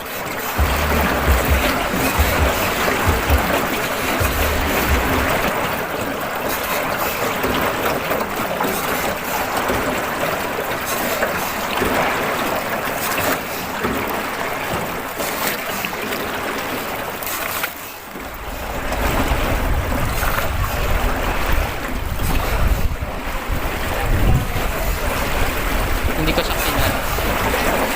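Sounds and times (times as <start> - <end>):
wind and water rushing: 0.0 - 27.9
wind buffeting on microphone: 18.4 - 27.9.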